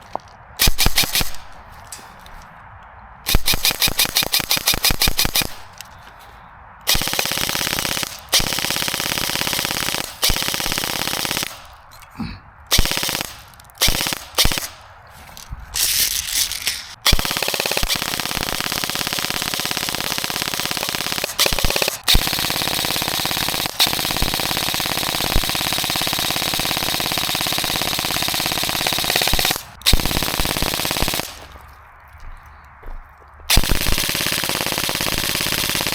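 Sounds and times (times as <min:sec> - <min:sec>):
airsoft gun firing bursts: 0:00.6 - 0:01.6, 0:03.2 - 0:05.8, 0:06.9 - 0:11.8, 0:12.7 - 0:14.8, 0:15.8 - 0:31.6, 0:33.5 - 0:35.9.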